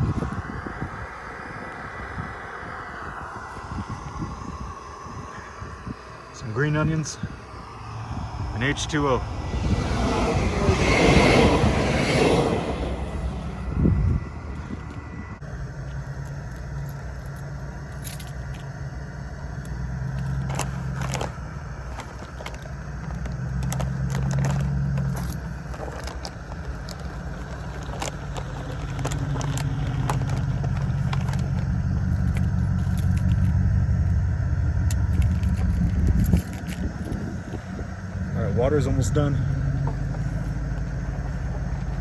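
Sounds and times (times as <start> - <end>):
low vehicle-like rumble: 0.0 - 42.0
small clicks and clatter: 19.6 - 34.2, 34.9 - 37.2.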